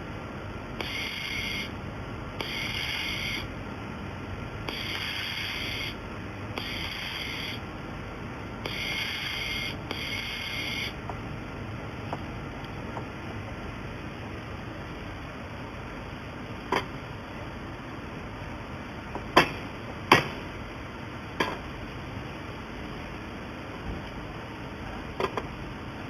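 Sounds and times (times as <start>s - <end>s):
welding machine hissing buzz: 0.7s - 3.6s, 4.6s - 7.8s, 8.6s - 11.0s.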